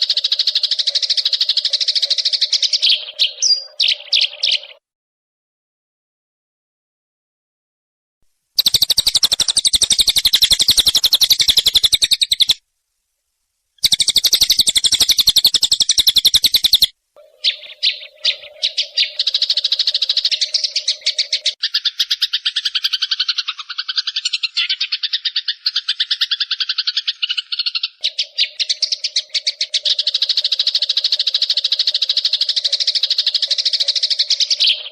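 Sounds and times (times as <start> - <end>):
sparrows chirping rapidly: 0.0 - 4.8, 8.6 - 12.6, 13.8 - 34.9.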